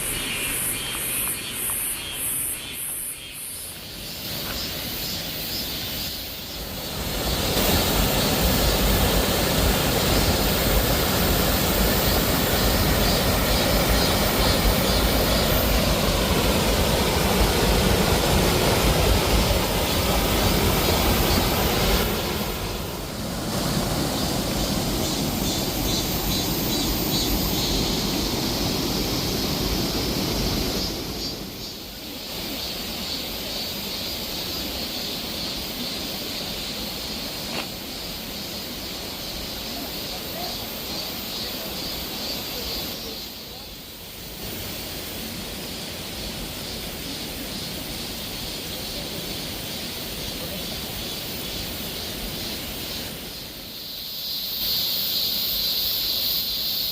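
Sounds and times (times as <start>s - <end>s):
waterfall rushing: 6.5s - 43.5s.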